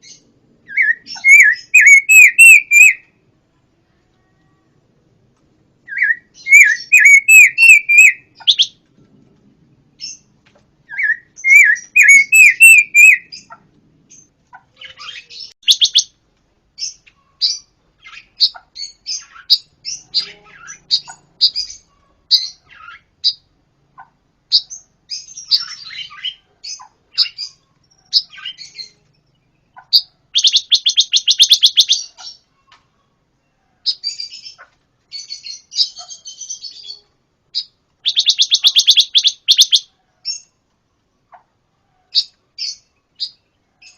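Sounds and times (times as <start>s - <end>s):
songbird singing: 0.0s - 3.2s, 5.8s - 43.9s
rattling bird trill: 11.0s - 13.6s.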